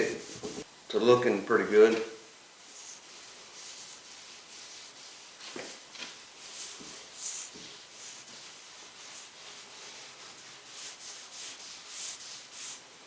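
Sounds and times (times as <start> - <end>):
cloth rubbing oil on wood: 2.6 - 12.9.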